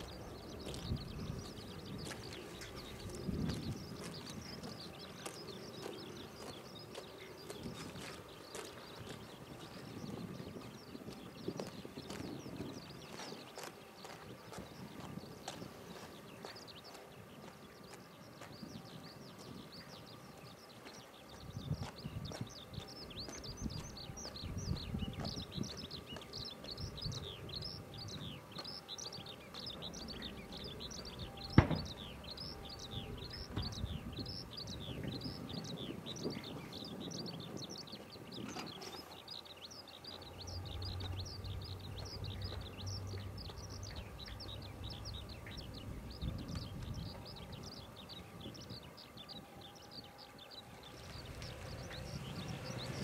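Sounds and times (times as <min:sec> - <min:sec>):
bird chirping: 0:00.0 - 0:53.0
outdoor background noise: 0:00.0 - 0:53.0.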